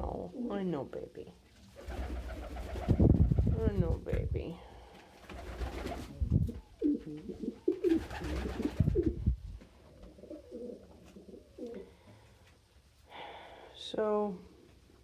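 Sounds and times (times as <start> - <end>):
pigeons cooing: 5.5 - 9.3, 9.9 - 12.0.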